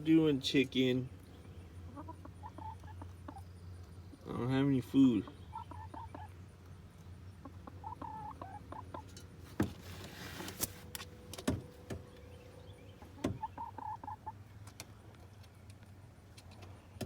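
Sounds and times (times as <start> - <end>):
chicken clucking: 1.8 - 3.5, 5.1 - 6.4, 7.0 - 9.2, 13.0 - 14.4.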